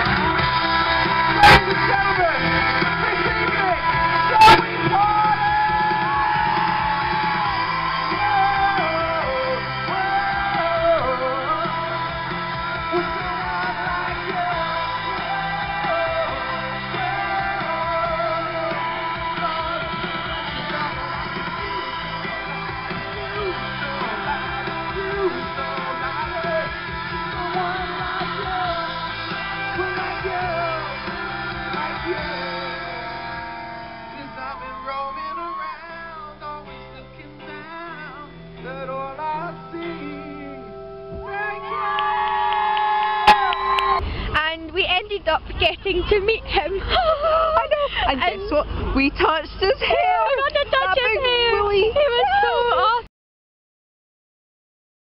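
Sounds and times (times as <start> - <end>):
person singing long sliding notes: 0.0 - 42.5
live rock music: 0.0 - 46.8
person yelling: 41.2 - 43.8.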